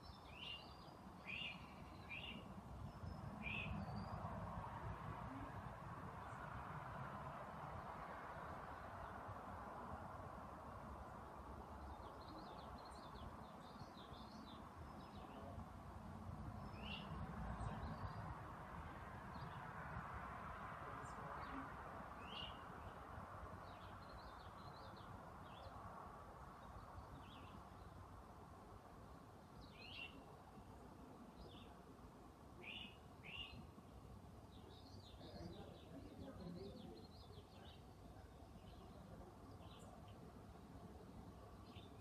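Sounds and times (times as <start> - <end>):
small birds chirping: 0.0 - 4.3, 11.2 - 15.7, 16.5 - 18.4, 21.0 - 28.2, 29.1 - 31.9, 32.5 - 42.0.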